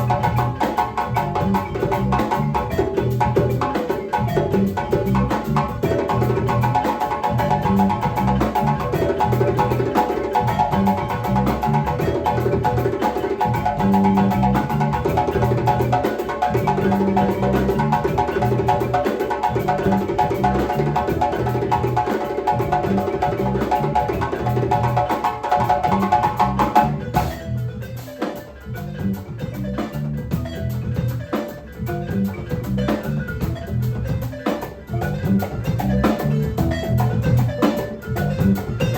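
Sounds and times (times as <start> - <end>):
drums: 0.0 - 38.9
rapid pitched percussion notes: 0.0 - 38.9.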